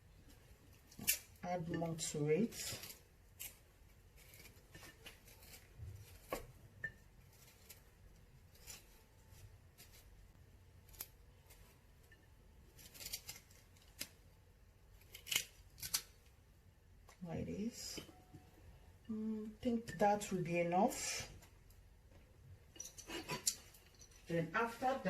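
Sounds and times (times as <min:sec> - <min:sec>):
knife cutting ginger: 0:00.8 - 0:11.7, 0:12.6 - 0:14.3, 0:14.9 - 0:16.3.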